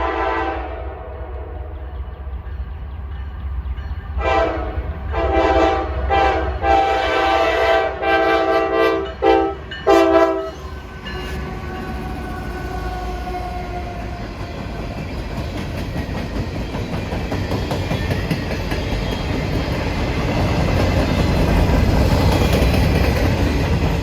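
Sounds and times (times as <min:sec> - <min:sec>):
locomotive air horn blasts: 0:00.0 - 0:01.6, 0:04.2 - 0:10.6
low rumble of moving train: 0:00.0 - 0:24.0.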